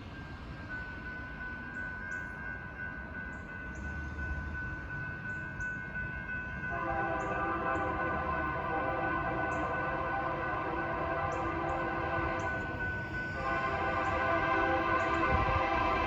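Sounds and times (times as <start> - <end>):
locomotive air horn chord: 6.7 - 16.0.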